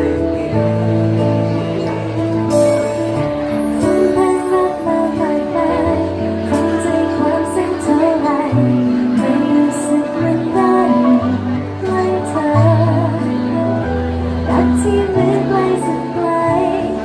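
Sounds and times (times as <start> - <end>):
bass line: 0.0 - 17.0
held chords: 0.0 - 17.0
woman singing wordless melody: 3.8 - 17.0.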